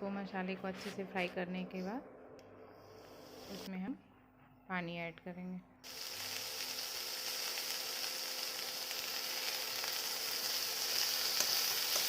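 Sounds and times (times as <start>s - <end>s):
food sizzling in a pan: 5.8s - 12.0s.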